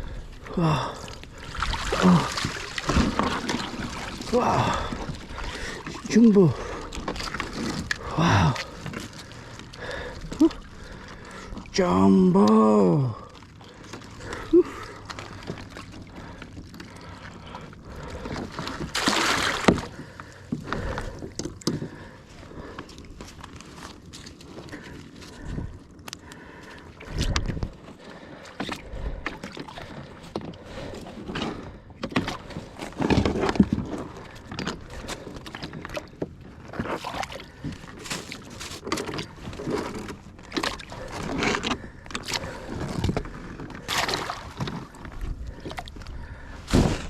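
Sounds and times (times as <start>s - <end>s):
water sloshing and gurgling: 0.0s - 47.0s
knocks and scrapes against hull: 2.4s - 4.3s, 6.7s - 10.4s, 27.1s - 47.0s.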